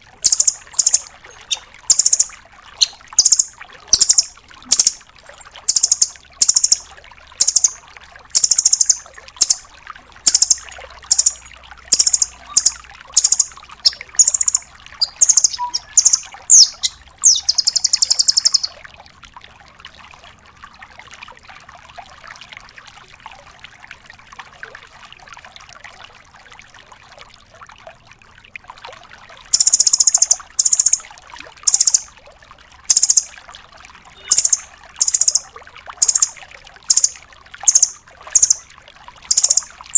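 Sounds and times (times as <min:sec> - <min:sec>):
faint background hiss: 0:00.0 - 0:18.7
bird rattling trill: 0:00.2 - 0:05.0, 0:05.7 - 0:06.8, 0:07.4 - 0:07.8, 0:08.4 - 0:09.6, 0:10.2 - 0:18.7, 0:29.5 - 0:31.0, 0:31.6 - 0:32.1, 0:32.9 - 0:33.3, 0:34.3 - 0:35.4, 0:36.0 - 0:38.6, 0:39.3 - 0:39.7
bird calling sharp high notes: 0:00.2 - 0:07.8, 0:08.4 - 0:09.6, 0:10.2 - 0:18.7, 0:29.6 - 0:31.0, 0:31.7 - 0:32.1, 0:32.9 - 0:33.3, 0:34.2 - 0:35.4, 0:36.0 - 0:38.6, 0:39.3 - 0:39.7.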